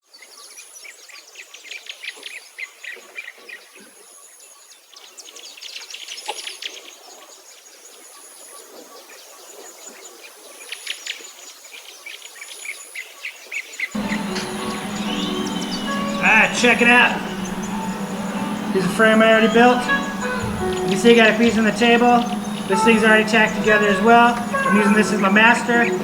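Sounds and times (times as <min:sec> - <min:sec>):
high insect trill: 0:14.0 - 0:26.0
songbirds chirping and singing: 0:14.0 - 0:26.0.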